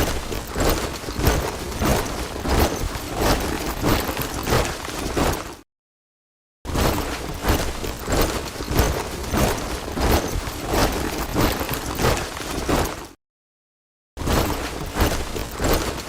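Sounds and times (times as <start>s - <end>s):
soldiers marching in step: 0.0s - 5.6s, 6.9s - 13.2s.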